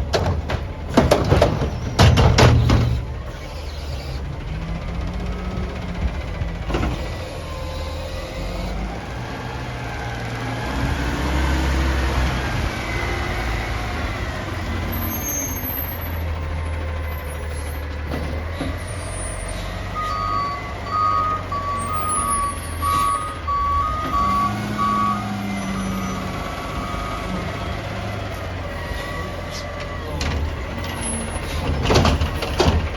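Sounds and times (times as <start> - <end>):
diesel engine revving: 0.0 - 32.9
reversing alarm beeping: 18.9 - 28.1.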